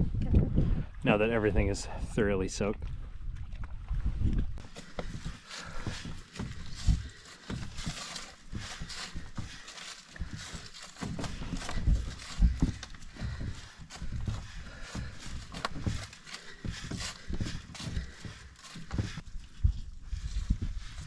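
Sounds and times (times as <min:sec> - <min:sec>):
knocks and thumps: 0:04.6 - 0:19.2.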